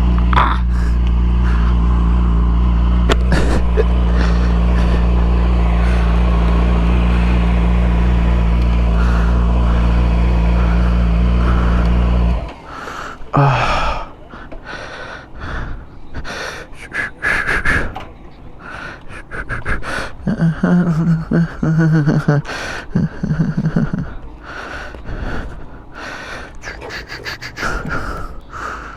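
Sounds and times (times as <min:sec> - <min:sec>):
motorcycle engine running: 0:00.0 - 0:28.9
close breathing on microphone: 0:00.7 - 0:01.8, 0:08.8 - 0:18.0, 0:18.6 - 0:28.9.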